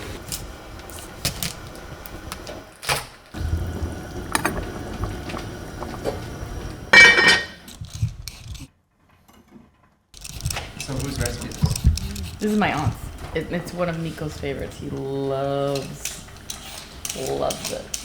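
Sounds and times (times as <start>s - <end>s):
ringing clatter of cookware: 6.9s - 7.6s
kitchen utensils clicking and knocking: 6.9s - 8.7s, 10.2s - 18.0s.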